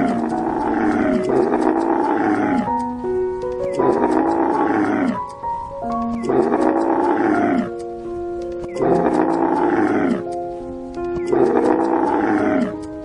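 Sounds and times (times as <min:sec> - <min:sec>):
big cat roaring: 0:00.0 - 0:02.7, 0:03.8 - 0:05.2, 0:06.2 - 0:07.8, 0:08.8 - 0:10.3, 0:11.3 - 0:12.8
music of held notes: 0:00.0 - 0:13.0.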